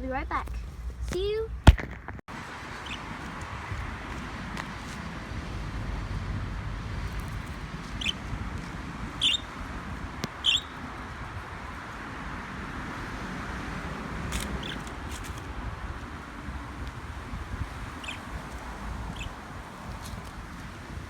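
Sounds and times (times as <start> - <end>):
budgerigar chirping: 2.8 - 3.0, 8.0 - 8.2, 9.2 - 9.5, 10.4 - 10.8, 14.6 - 14.8, 18.0 - 18.3, 19.2 - 19.4.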